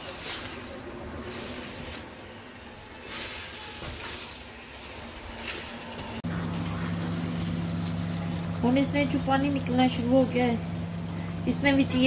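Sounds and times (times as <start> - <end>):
wooden spatula scraping a pan: 0.0 - 2.1
livers sizzling in a pan: 0.0 - 12.0.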